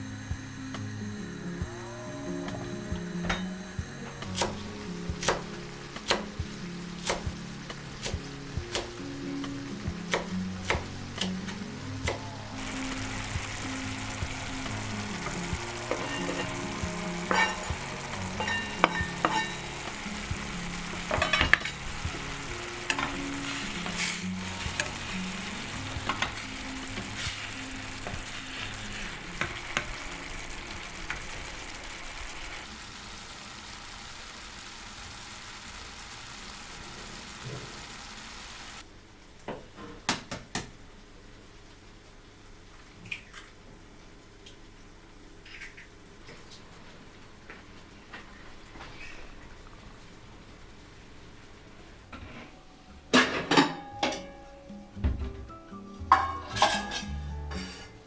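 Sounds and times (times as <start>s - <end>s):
food sizzling in a frying pan: 0.0s - 38.9s, 55.9s - 58.0s.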